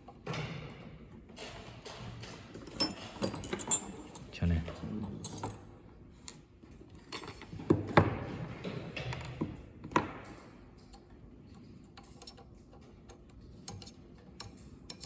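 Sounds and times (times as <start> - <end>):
metal clicks and knocks: 7.2 - 15.0.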